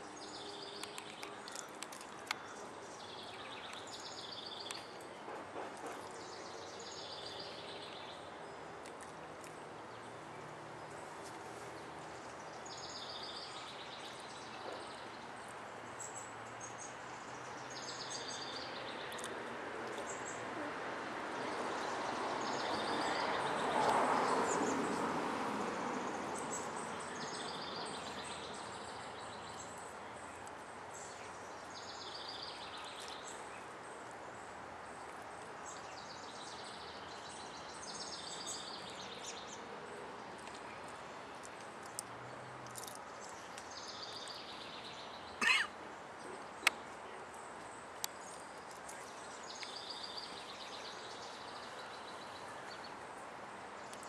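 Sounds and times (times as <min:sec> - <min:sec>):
outdoor background noise: 0:00.0 - 0:54.0
birds chirping: 0:26.2 - 0:54.0.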